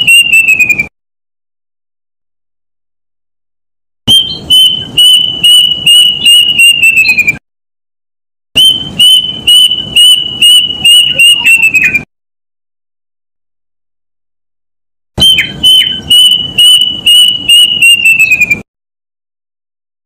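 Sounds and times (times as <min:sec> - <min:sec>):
bird whistled call: 0:00.0 - 0:00.9, 0:04.1 - 0:07.4, 0:08.6 - 0:12.1, 0:15.2 - 0:18.7.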